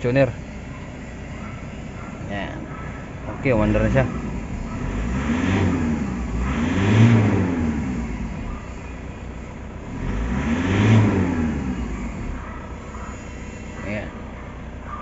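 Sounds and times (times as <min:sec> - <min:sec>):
diesel engine idling and revving: 0:00.0 - 0:15.0.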